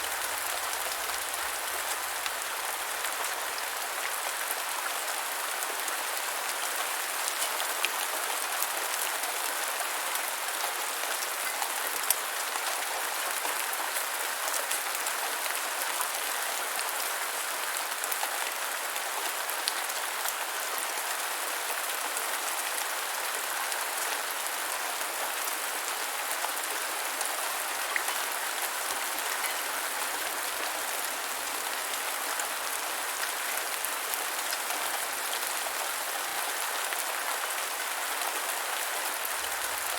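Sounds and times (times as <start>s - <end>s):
gentle rain falling: 0.0s - 39.9s.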